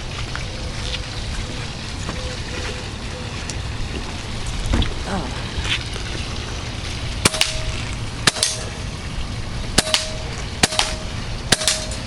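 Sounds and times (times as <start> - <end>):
air rifle shots cracking: 8.3 - 8.7, 9.8 - 12.0.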